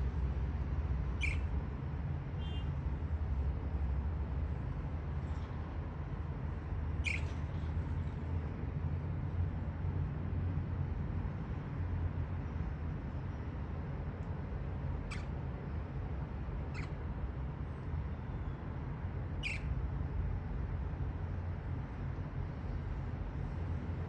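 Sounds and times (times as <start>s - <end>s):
budgerigars chirping: 1.2s - 1.5s, 7.0s - 7.4s, 15.1s - 15.3s, 16.7s - 16.9s, 19.4s - 19.7s.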